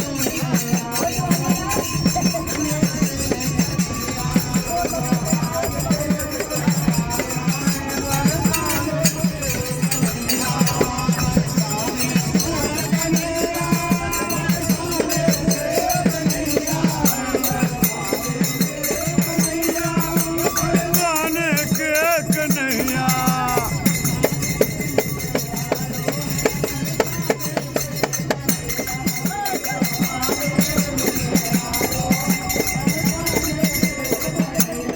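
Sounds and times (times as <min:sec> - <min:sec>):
high wavering vocal line: 0:00.0 - 0:24.5
group singing devotional music: 0:00.0 - 0:34.9
jingling hand percussion: 0:00.0 - 0:34.9.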